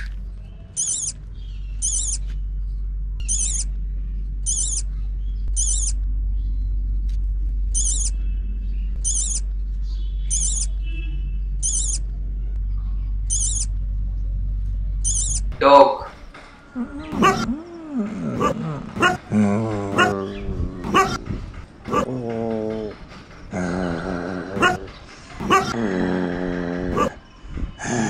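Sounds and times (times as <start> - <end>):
steady low rumble: 0.0 - 28.0
small bird quavering call: 0.8 - 1.2, 1.8 - 2.2, 3.3 - 3.7, 4.5 - 4.8, 5.6 - 5.9, 9.1 - 9.4, 10.3 - 10.7, 13.3 - 13.7.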